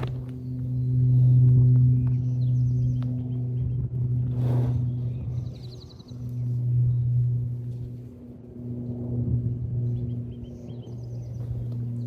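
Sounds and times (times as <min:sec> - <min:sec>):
steady low hum: 0:00.0 - 0:12.0
bird chirping: 0:00.3 - 0:03.9, 0:04.7 - 0:07.4, 0:09.7 - 0:12.0.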